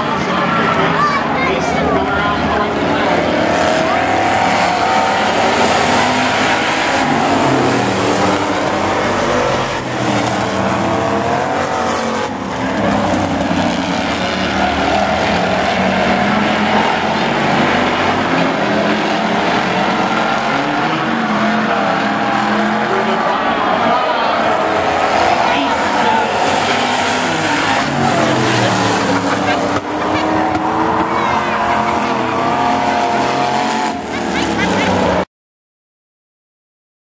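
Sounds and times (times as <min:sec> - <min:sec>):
pickup truck engines revving: 0:00.0 - 0:35.2.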